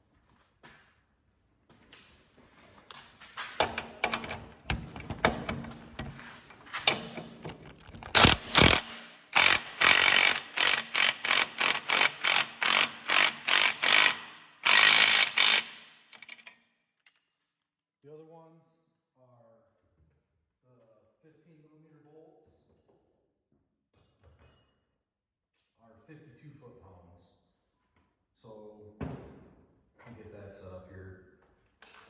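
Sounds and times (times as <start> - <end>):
metallic clicks and knocks: 3.5 - 10.3
impact wrench bursts: 3.6 - 16.1.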